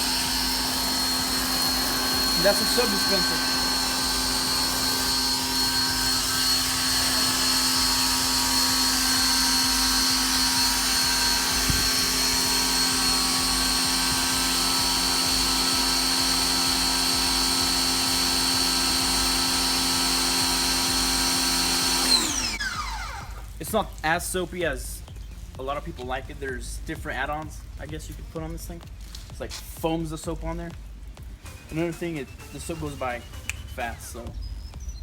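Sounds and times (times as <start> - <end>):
pressure washer motor humming: 0.0 - 23.6.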